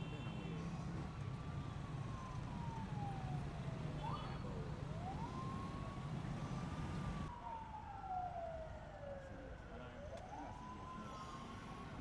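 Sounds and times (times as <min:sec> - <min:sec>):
sirens wailing: 0:04.9 - 0:06.0, 0:10.1 - 0:12.0.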